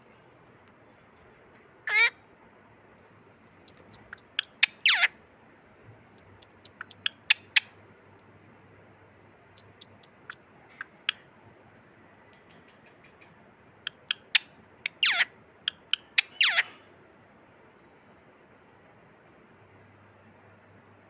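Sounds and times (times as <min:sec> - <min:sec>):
parrot clicks and chirps: 0:03.6 - 0:05.1, 0:06.1 - 0:08.3, 0:09.4 - 0:11.4, 0:12.2 - 0:16.6.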